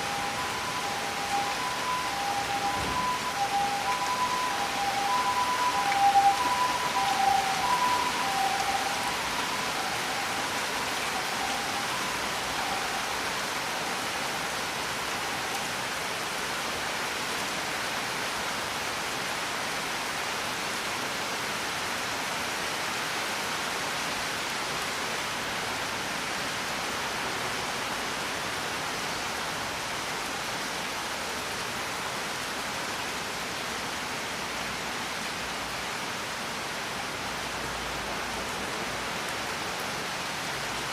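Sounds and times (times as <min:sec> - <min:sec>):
held musical tones: 0:00.0 - 0:13.0
steady rain hiss: 0:00.0 - 0:40.9.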